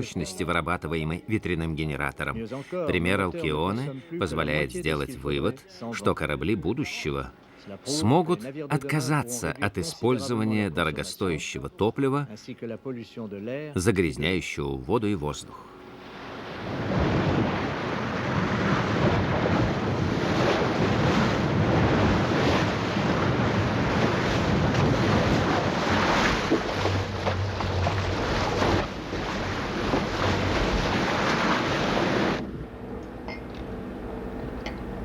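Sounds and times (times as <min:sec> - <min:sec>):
waves washing along hull: 0:15.8 - 0:35.0
wind buffeting microphone: 0:16.7 - 0:35.0.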